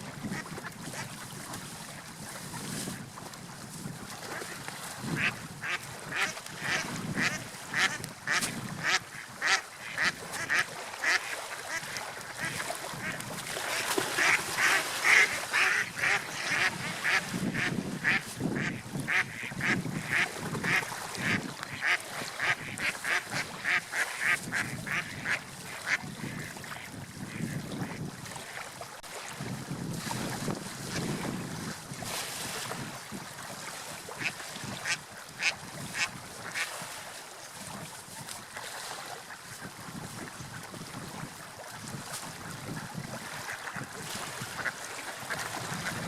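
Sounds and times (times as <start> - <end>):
wind: 0.0 - 46.0
water rushing: 4.3 - 39.4
ducks quacking: 5.2 - 26.6, 27.3 - 28.0, 34.2 - 36.8.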